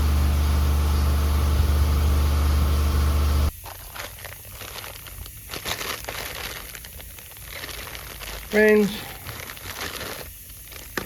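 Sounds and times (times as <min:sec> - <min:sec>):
steady low hum: 0:00.0 - 0:03.7.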